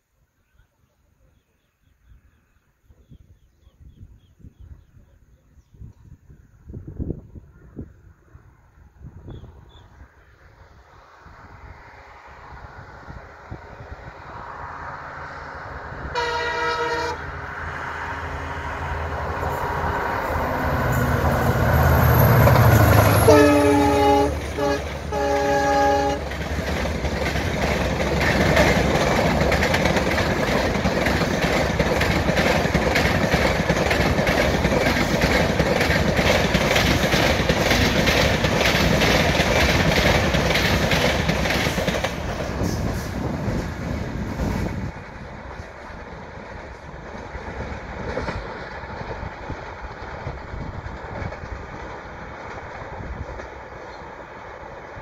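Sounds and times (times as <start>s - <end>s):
locomotive rumble: 8.2s - 55.0s
wheels clickety-clack over rail joints: 11.7s - 55.0s
train horn: 16.0s - 17.6s, 22.4s - 26.4s.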